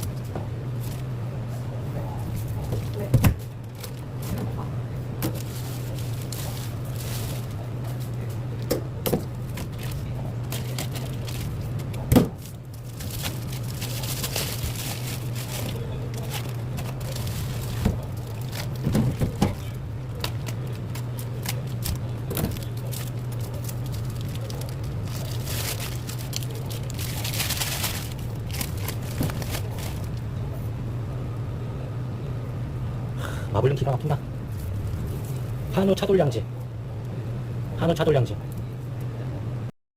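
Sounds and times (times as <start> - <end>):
steady low hum: 0.0 - 39.7.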